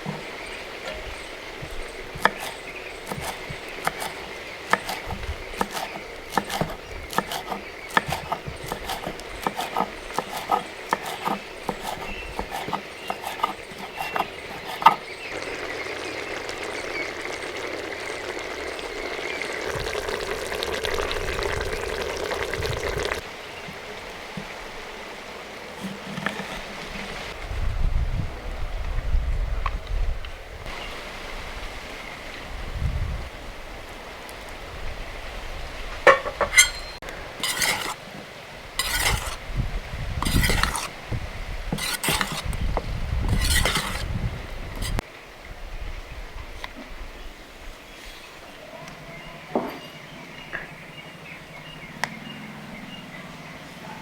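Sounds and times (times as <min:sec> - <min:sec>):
steady cooking hiss: 0:00.0 - 0:27.4
utensil clinking in pot: 0:36.1 - 0:38.0, 0:38.8 - 0:39.4, 0:40.2 - 0:40.9, 0:41.8 - 0:42.4.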